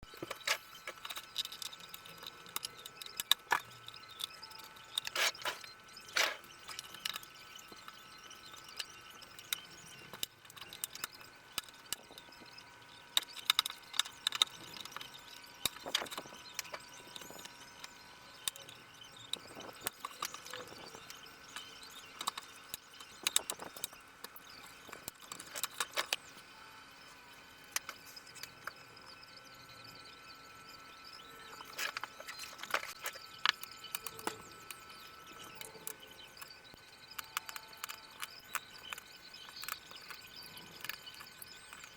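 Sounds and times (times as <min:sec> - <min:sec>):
faint steady high tone: 0:00.0 - 0:41.9
tools and screws clicking: 0:00.1 - 0:12.4, 0:13.1 - 0:26.2, 0:37.1 - 0:41.9.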